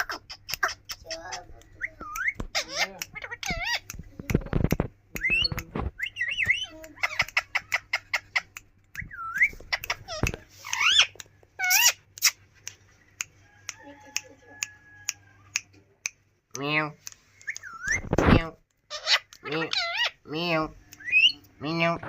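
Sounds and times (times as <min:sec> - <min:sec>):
parakeet whistling and squawking: 0:00.3 - 0:04.0, 0:05.2 - 0:12.4, 0:17.5 - 0:18.3, 0:18.9 - 0:20.3, 0:21.0 - 0:21.4
regular ticks: 0:00.3 - 0:17.9.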